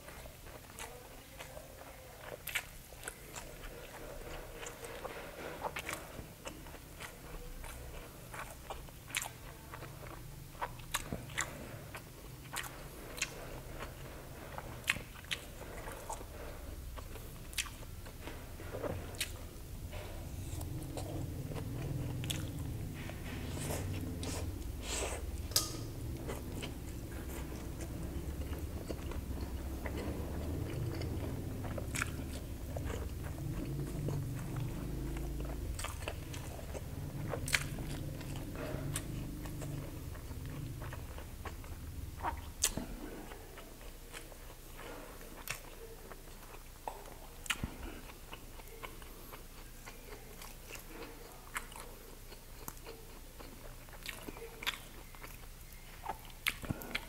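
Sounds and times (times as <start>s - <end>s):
close-up chewing: 0.0s - 57.0s.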